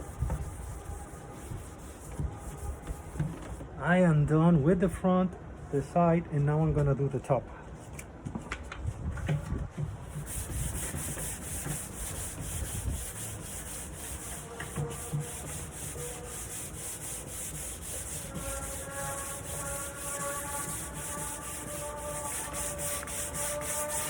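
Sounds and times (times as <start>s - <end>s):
sanding wood: 0.0s - 3.6s, 10.0s - 24.0s.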